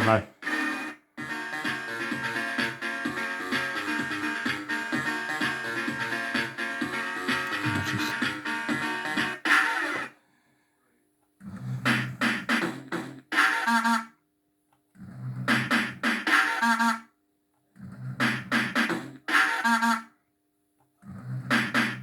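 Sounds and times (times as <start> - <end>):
sampled voice over a beat: 0.0 - 0.4, 7.4 - 8.4.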